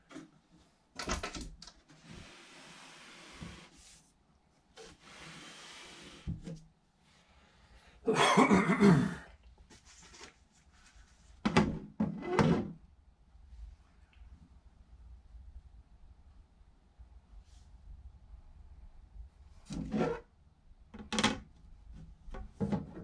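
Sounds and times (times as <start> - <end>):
crate sliding on cloth: 2.0 - 4.0, 4.8 - 6.6.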